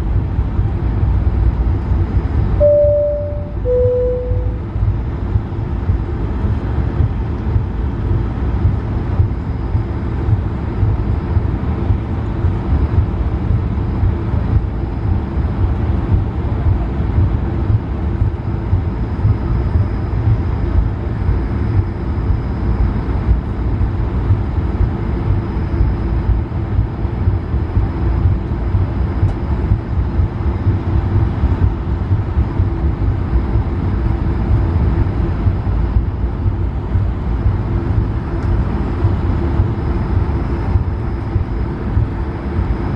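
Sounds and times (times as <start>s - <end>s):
airplane cabin engine rumble: 0.0s - 42.9s
faint high whine: 2.6s - 5.3s.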